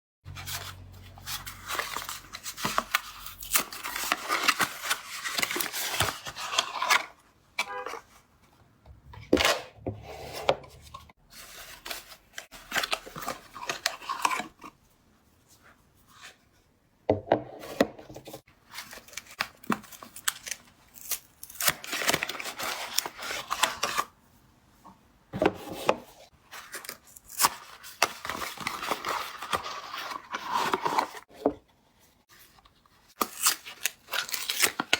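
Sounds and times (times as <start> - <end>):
wrappers tearing and crinkling: 33.2 - 34.9.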